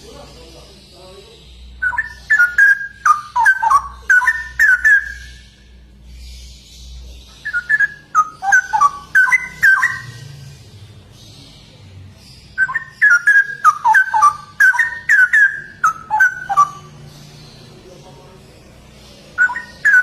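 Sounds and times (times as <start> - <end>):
bird singing whistled phrases: 1.7 - 5.7, 7.4 - 10.3, 12.5 - 16.9, 19.4 - 20.0.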